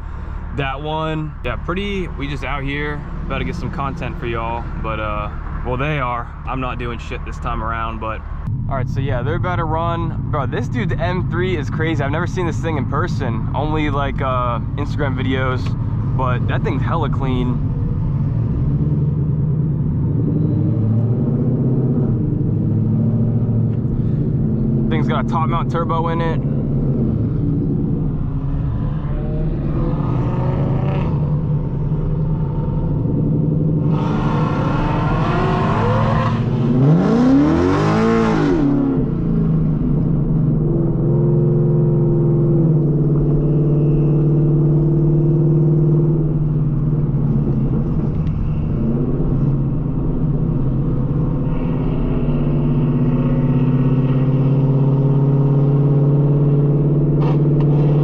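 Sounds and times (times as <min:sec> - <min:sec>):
car engines droning: 0:00.0 - 0:58.0.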